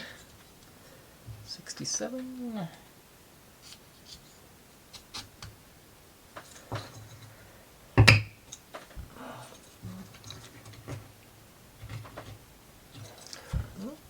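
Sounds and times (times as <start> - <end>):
loud sharp wooden knock: 8.0 - 8.4
wooden parts clicking and tapping: 8.0 - 11.2.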